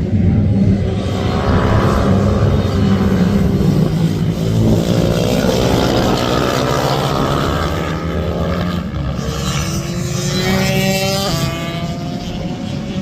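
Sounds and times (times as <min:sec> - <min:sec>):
minibike engines revving: 0:02.6 - 0:13.0.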